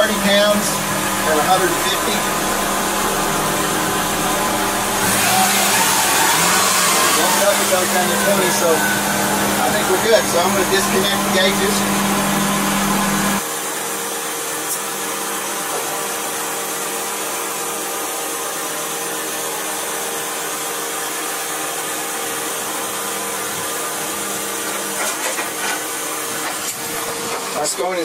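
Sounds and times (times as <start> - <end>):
car engine idling: 0.0 - 13.4
loud hum: 0.0 - 13.6.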